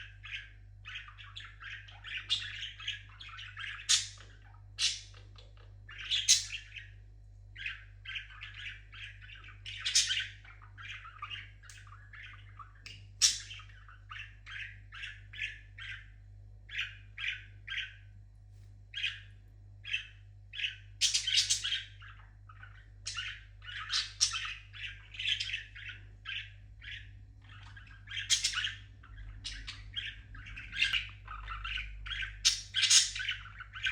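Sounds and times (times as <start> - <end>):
parrot squawks: 18.9 - 33.9.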